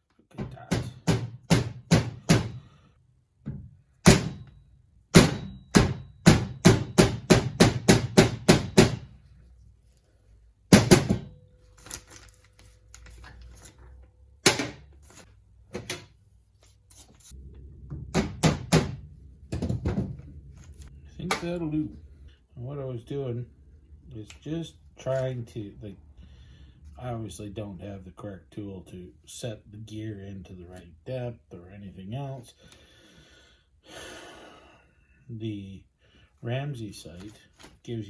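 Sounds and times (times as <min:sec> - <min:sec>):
hammer on metal gear: 0:04.0 - 0:04.5, 0:05.2 - 0:09.1.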